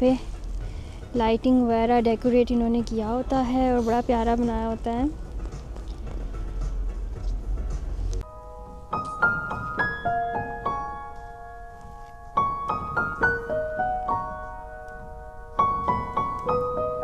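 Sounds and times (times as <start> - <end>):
low outdoor rumble: 0.0 - 9.0
solo piano music: 8.2 - 17.0.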